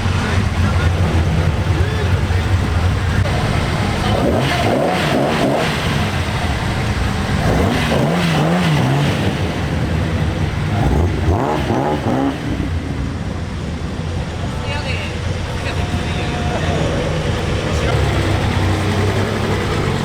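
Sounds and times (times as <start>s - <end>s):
car engine and exhaust revving: 0.0s - 20.0s.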